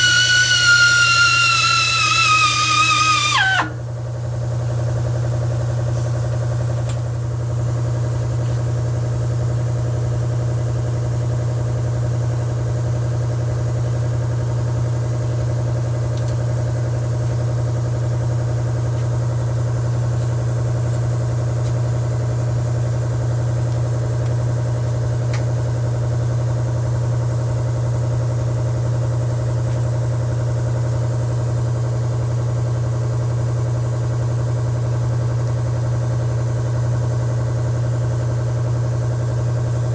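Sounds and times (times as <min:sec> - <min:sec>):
motor humming: 0:00.0 - 0:03.9.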